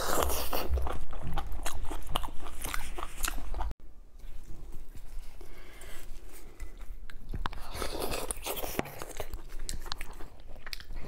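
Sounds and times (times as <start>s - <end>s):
close chewing of meat: 0.0s - 11.0s
soft eating sounds: 0.0s - 11.0s.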